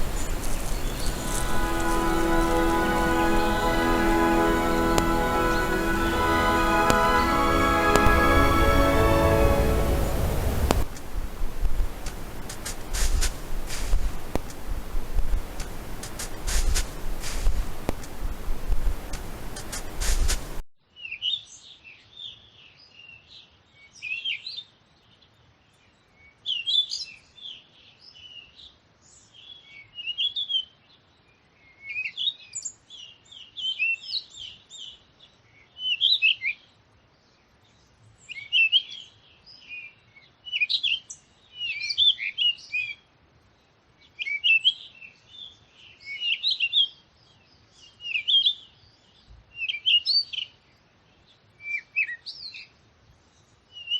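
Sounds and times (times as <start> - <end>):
songbird twittering: 0.0 - 3.3.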